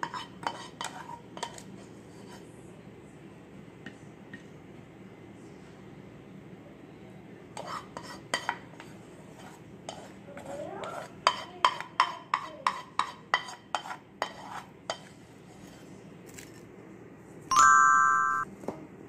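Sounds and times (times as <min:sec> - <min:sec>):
spoon scraping and knocking pan: 0:00.0 - 0:02.4, 0:07.6 - 0:15.8.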